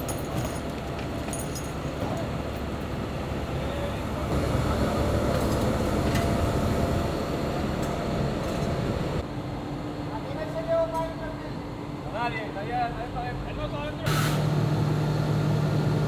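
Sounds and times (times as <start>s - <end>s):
heavy truck engines rumbling: 0.0s - 9.2s, 14.0s - 16.0s.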